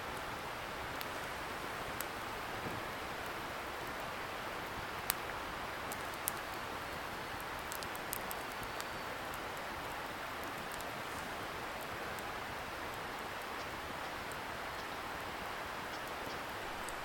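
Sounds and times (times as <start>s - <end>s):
campfire crackling: 0.0s - 17.0s
sharp pops of burning wood: 4.9s - 8.9s.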